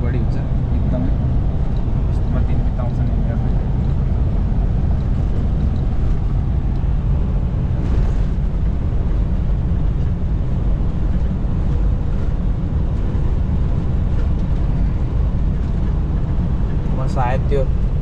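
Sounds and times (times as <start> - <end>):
truck diesel engine rumble: 0.0 - 18.0.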